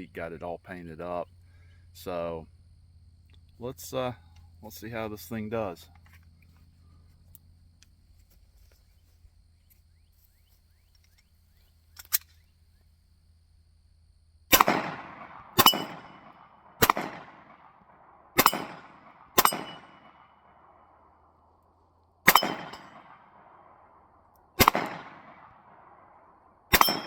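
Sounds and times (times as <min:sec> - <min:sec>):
gunshots with echo: 0:14.5 - 0:20.8, 0:22.3 - 0:27.0
steel plate ringing: 0:22.3 - 0:22.9, 0:26.8 - 0:27.0.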